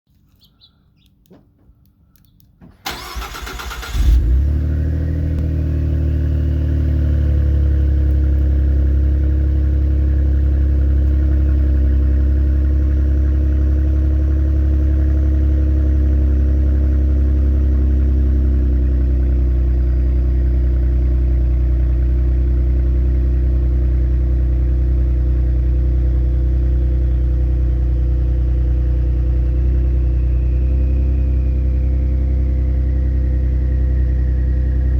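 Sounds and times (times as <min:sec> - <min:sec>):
car starter cranking: 0:02.6 - 0:04.5
car engine revving and idling: 0:02.9 - 0:34.9.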